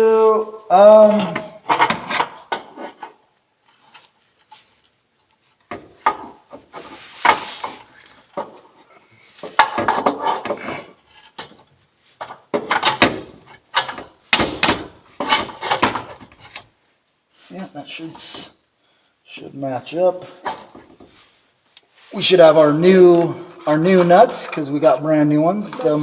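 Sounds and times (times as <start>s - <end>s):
metal pipes clanking and scraping: 9.4s - 11.6s, 22.2s - 26.0s.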